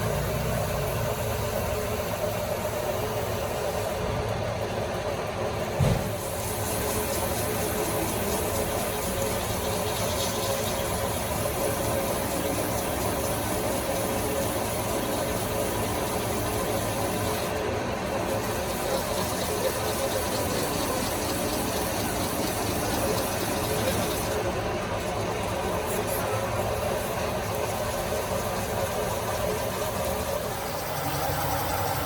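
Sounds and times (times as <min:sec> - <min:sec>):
single thump: 0:05.8 - 0:06.2
machine humming: 0:30.0 - 0:32.0.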